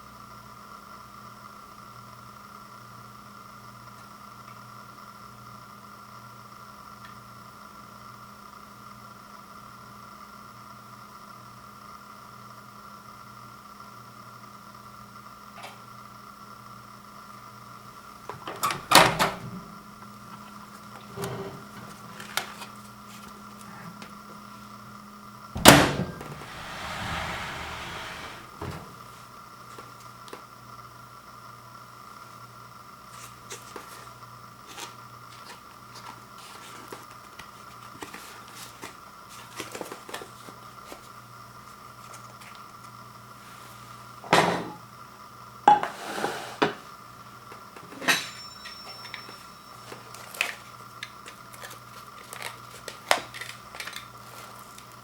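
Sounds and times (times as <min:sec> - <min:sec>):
microwave oven humming: 0:00.0 - 0:45.8, 0:46.6 - 0:55.0.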